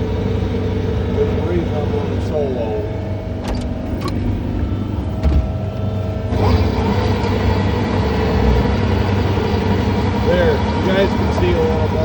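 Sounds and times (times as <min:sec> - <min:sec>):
skid steer engine running: 0:00.0 - 0:12.0.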